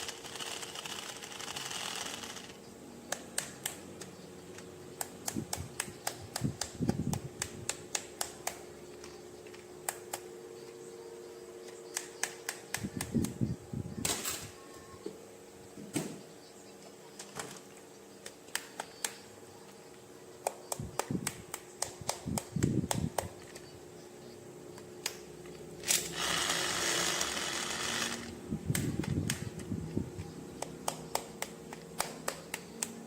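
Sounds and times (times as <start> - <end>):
plastic toy parts clicking: 0.0 - 10.2.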